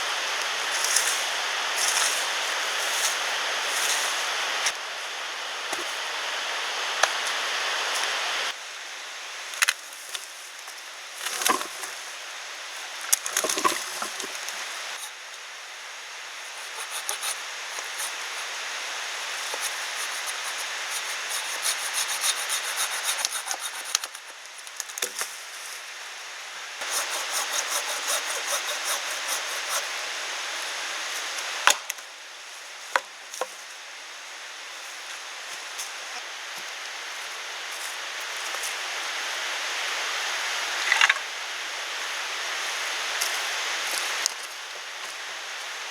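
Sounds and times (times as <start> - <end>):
hand saw cutting wood: 16.5 - 18.6, 19.2 - 24.3, 26.8 - 30.0.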